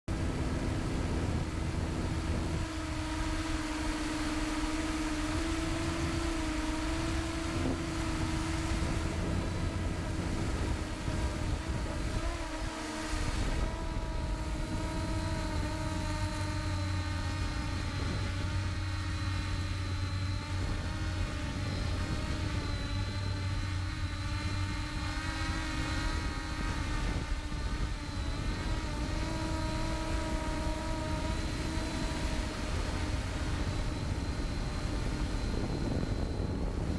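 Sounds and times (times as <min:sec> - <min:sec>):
engine humming: 0:00.0 - 0:36.9.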